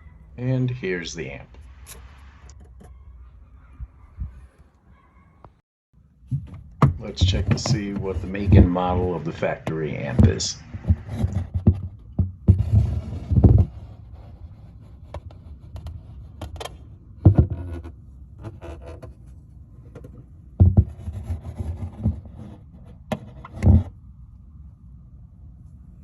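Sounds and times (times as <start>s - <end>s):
heavy thumps: 6.3s - 13.7s
knocks and clicks of plastic and metal: 6.3s - 13.7s, 15.8s - 17.6s, 19.9s - 21.0s, 23.1s - 23.9s.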